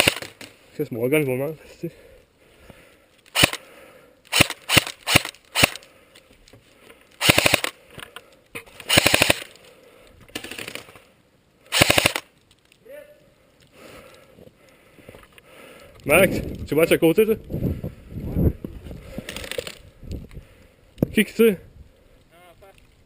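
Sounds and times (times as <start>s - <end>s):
airsoft gun firing: 0.0s - 0.4s, 3.3s - 3.6s, 4.3s - 5.8s, 7.2s - 7.8s, 8.9s - 9.5s, 11.7s - 12.3s.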